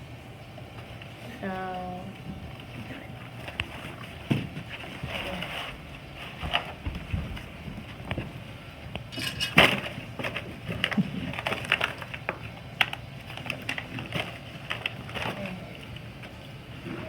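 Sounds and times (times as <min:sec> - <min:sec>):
knocks and clatter of handled objects: 0:09.0 - 0:17.0.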